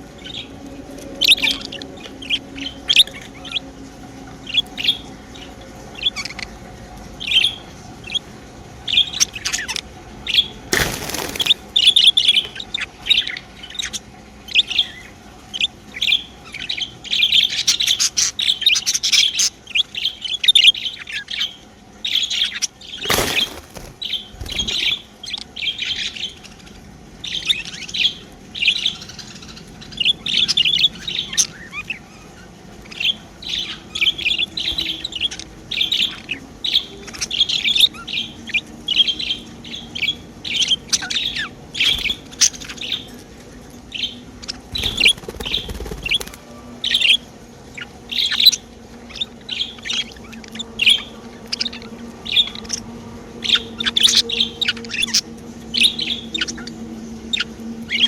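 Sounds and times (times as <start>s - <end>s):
faint low hum: 0.0s - 58.0s
budgerigars chirping: 8.9s - 32.0s, 32.9s - 43.2s, 43.9s - 52.8s, 53.4s - 55.2s.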